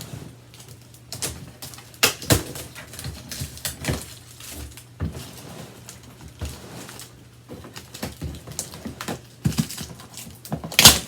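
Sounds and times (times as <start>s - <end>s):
cardboard box crackling and scraping: 0.0s - 0.5s, 2.6s - 10.4s.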